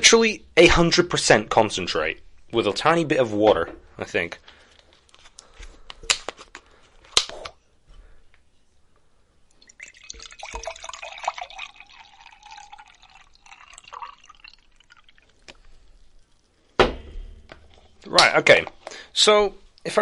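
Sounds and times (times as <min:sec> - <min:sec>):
juice pouring into a cup: 0:09.5 - 0:16.8
sharp knock: 0:16.8 - 0:17.5.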